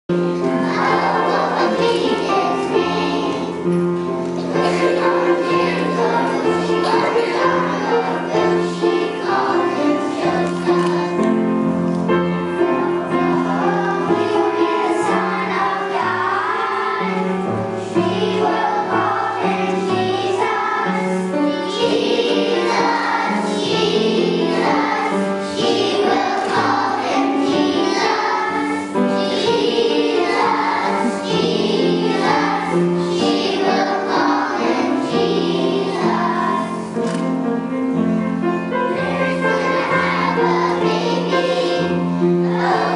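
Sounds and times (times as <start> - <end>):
musical accompaniment: 0.1 - 42.9
children singing: 0.3 - 37.2, 38.7 - 42.9.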